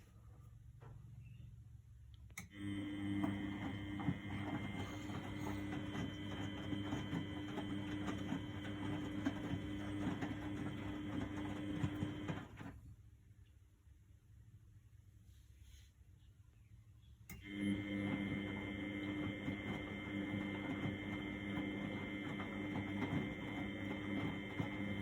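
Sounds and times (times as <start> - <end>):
inlet valve humming: 2.4 - 12.6, 17.3 - 25.0.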